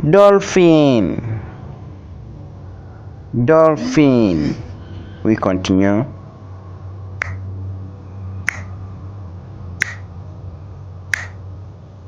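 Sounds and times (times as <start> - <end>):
low steady hum: 0.0 - 12.0
sharp short clicks: 7.2 - 7.4, 8.5 - 8.7, 9.8 - 10.1, 11.1 - 11.4.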